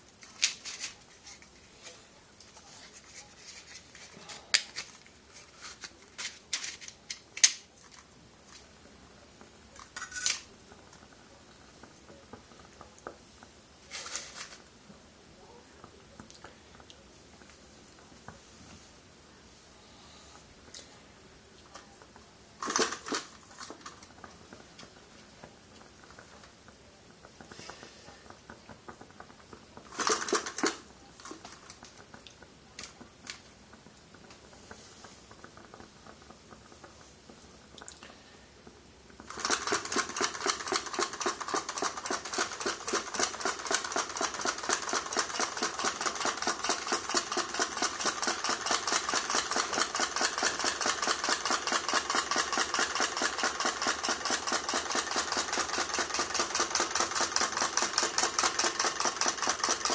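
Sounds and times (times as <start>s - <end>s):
model engine mechanical clatter: 9.8s - 11.1s, 21.8s - 26.7s, 27.3s - 32.2s, 39.2s - 59.9s.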